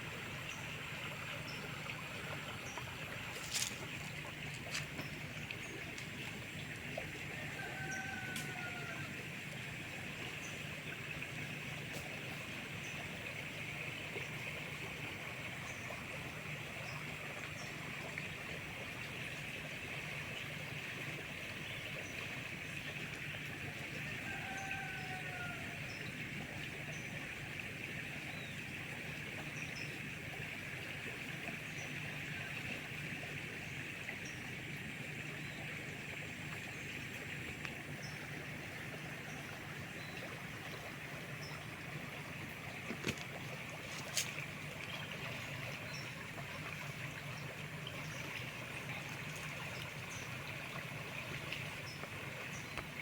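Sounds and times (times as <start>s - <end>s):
river water rushing: 0.0s - 9.6s, 37.3s - 53.0s
river water flowing: 0.0s - 53.0s.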